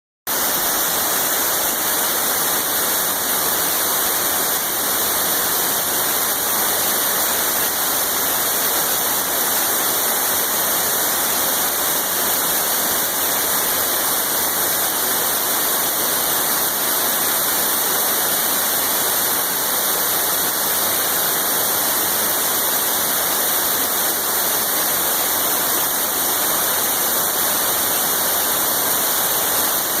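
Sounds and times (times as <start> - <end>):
waterfall rushing: 0.3 - 30.0.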